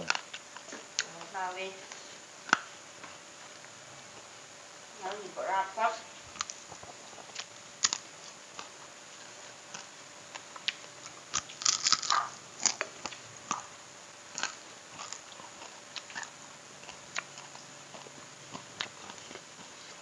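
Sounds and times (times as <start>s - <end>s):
person chewing crunchy food: 0.0s - 1.2s, 6.1s - 20.0s.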